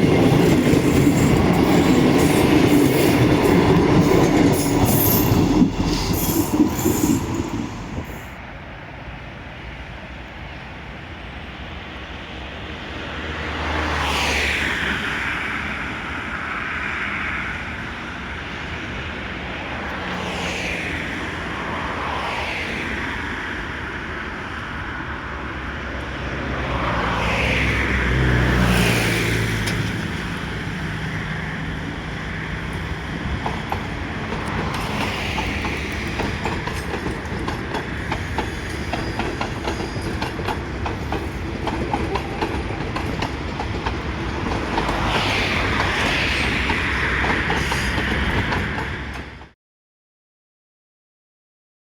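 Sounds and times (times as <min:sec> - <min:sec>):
passenger train drone: 0:00.0 - 0:49.6
wheels clicking over rail joints: 0:32.6 - 0:49.5.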